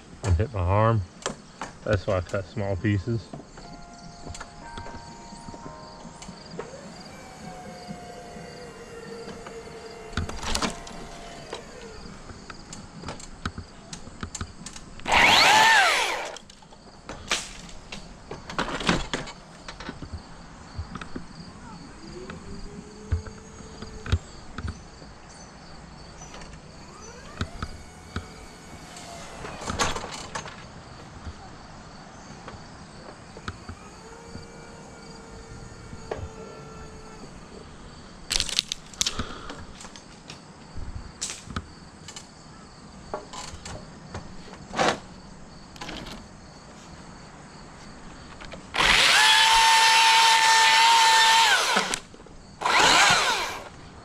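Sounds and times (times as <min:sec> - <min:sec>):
hydraulic motor whining: 0:03.7 - 0:13.6, 0:14.7 - 0:16.6, 0:22.2 - 0:24.8, 0:26.2 - 0:30.6, 0:33.0 - 0:39.4, 0:48.7 - 0:53.8.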